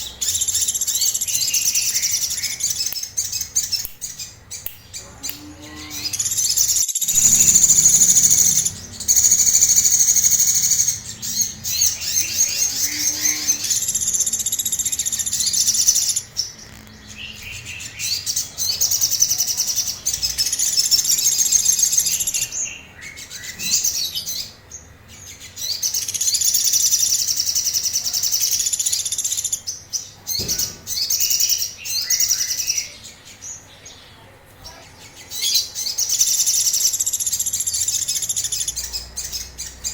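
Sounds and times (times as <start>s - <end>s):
bird high-pitched trills: 0.0s - 33.6s.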